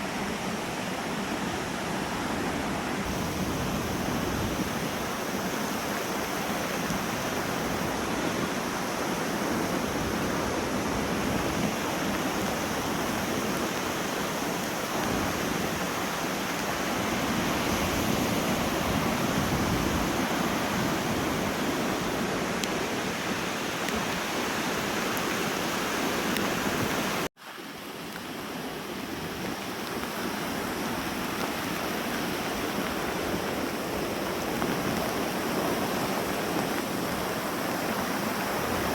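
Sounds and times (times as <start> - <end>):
waves washing onto beach: 0.0 - 38.9
wind buffeting microphone: 3.0 - 27.3.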